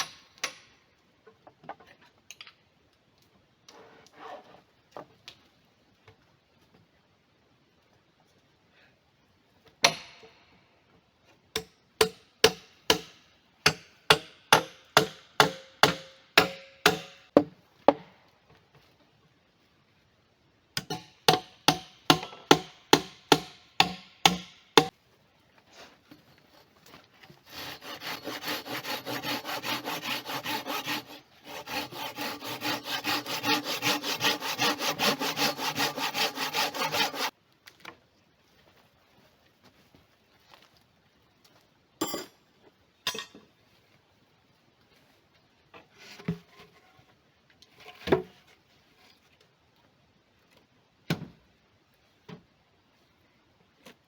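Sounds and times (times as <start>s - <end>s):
rhythmic hand sawing: 14.1s - 17.2s, 21.3s - 24.9s, 27.4s - 37.3s.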